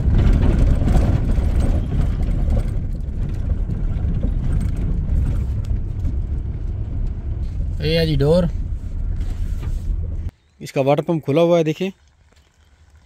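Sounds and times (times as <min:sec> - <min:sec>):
car engine and road noise: 0:00.0 - 0:10.4.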